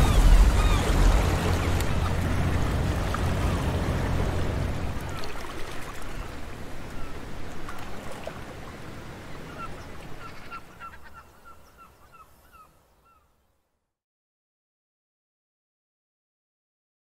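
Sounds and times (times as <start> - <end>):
water washing: 0.0 - 8.6.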